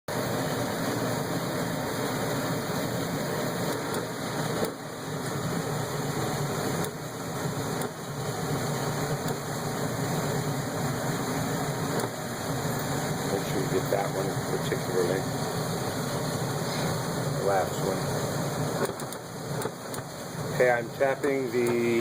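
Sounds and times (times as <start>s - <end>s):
furnace running: 0.1s - 22.0s.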